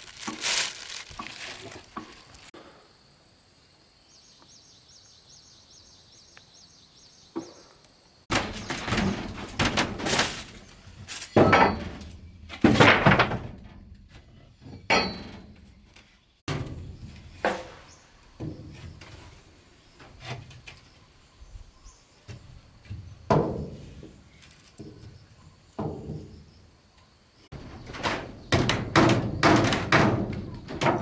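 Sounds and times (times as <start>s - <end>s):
loud thumps and knocks: 8.3s - 10.7s, 27.5s - 31.0s.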